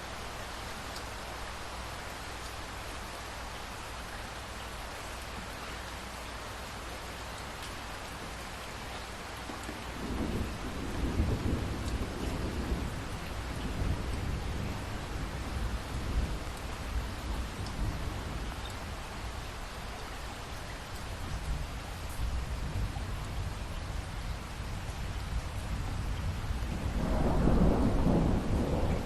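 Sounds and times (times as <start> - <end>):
steady rain falling: 0.0 - 29.0
thunder rumbling: 9.9 - 18.5, 26.2 - 29.0.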